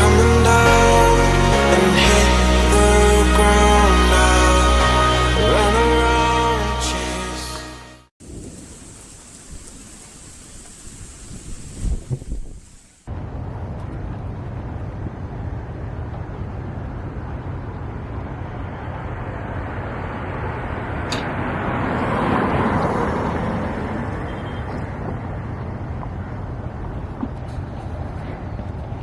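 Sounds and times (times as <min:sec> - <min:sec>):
moving vehicle rumble: 0:13.1 - 0:29.0.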